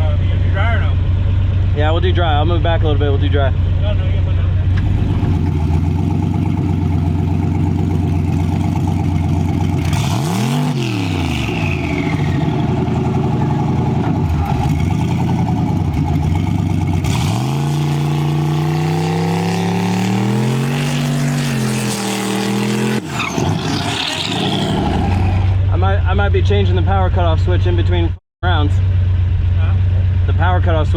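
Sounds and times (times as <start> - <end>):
loud lumpy engine revving: 0.0 - 27.8
turbo whistle: 10.8 - 13.6.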